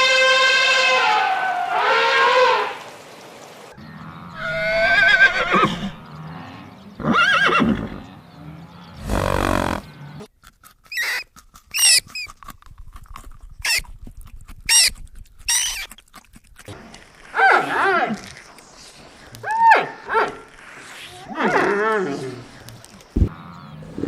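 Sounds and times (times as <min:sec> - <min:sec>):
wavering animal calls: 0:03.8 - 0:10.3.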